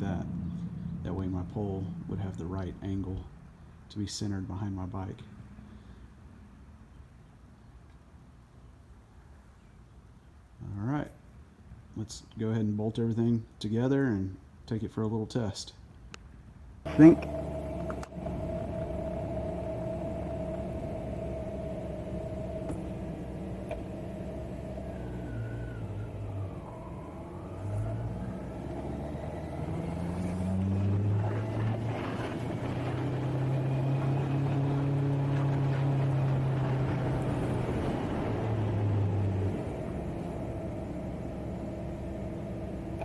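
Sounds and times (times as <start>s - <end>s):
motorcycle engine shifting gears: 16.9s - 43.0s.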